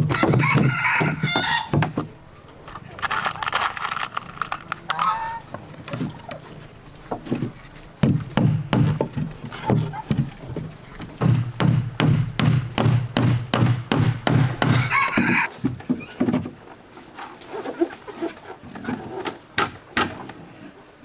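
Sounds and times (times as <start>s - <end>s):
dull knocking strikes: 7.1s - 14.9s.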